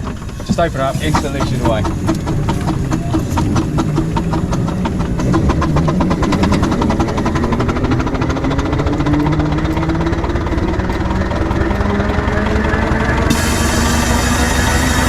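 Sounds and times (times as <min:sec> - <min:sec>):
low rumble: 0:00.0 - 0:15.0
steam engine chuffing: 0:00.0 - 0:15.0.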